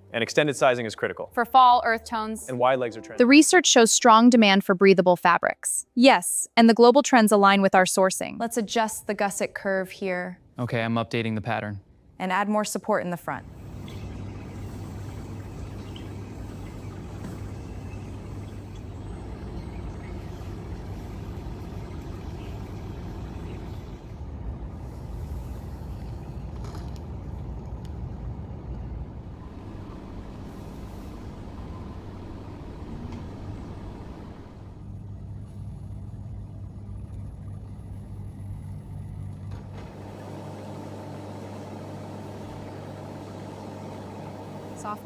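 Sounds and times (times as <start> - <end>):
machinery humming: 13.4 - 45.0.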